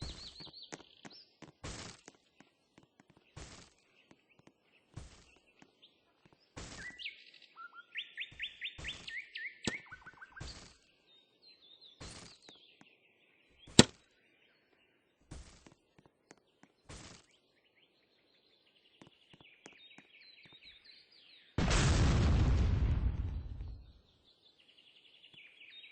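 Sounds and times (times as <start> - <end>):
bird chirping: 0.0 - 21.6, 23.7 - 25.9.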